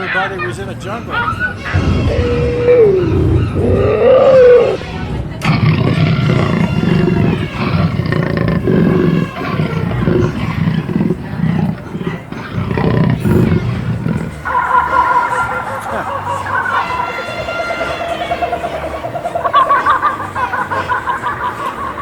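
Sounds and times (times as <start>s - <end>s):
gliding animal call: 1.1s - 22.0s
recorded animal roars and growls: 1.2s - 17.1s.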